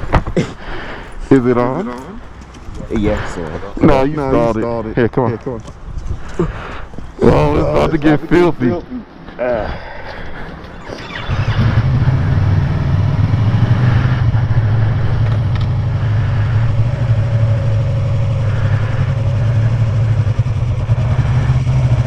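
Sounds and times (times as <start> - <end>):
motorcycle engine starting and running: 10.8 - 22.0.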